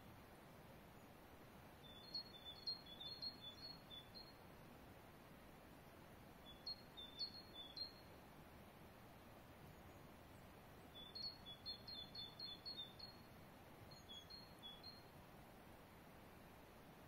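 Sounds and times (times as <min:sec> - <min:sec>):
faint outdoor hiss: 0:00.0 - 0:17.0
songbird chirping: 0:01.8 - 0:04.5, 0:06.3 - 0:08.3, 0:09.6 - 0:15.2.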